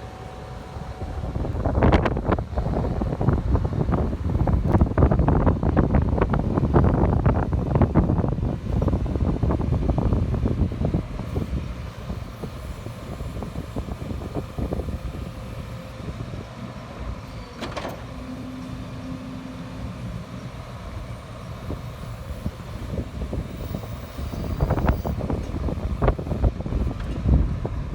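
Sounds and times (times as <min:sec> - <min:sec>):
excavator engine rumble: 0:00.0 - 0:27.9.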